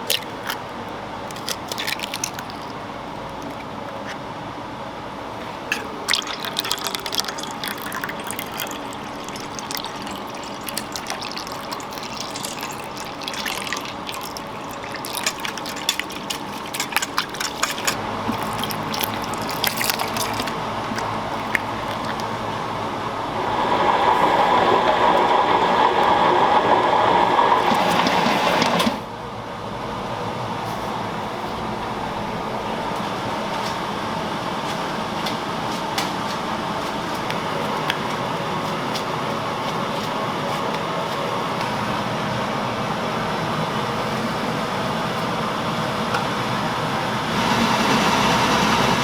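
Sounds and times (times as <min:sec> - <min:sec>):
utensils clinking and knocking: 0:05.7 - 0:22.4
steady rushing water-like noise: 0:05.7 - 0:28.8.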